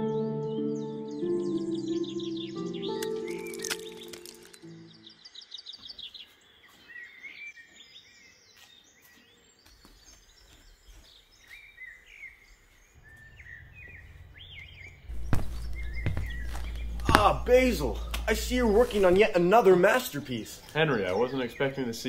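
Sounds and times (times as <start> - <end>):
birds chirping: 0.0 - 22.0
low rumble: 13.0 - 19.0.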